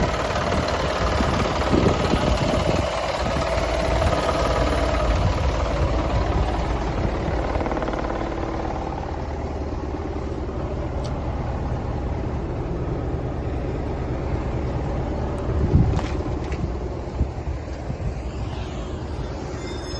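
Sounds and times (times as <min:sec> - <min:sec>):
truck diesel engine idling: 0:00.0 - 0:18.0.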